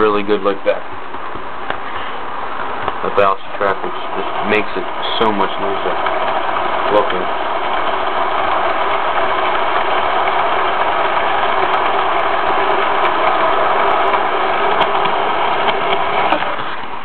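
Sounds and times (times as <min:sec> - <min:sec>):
model train motor hum: 0:00.0 - 0:17.0
small clicks of track: 0:09.4 - 0:16.6.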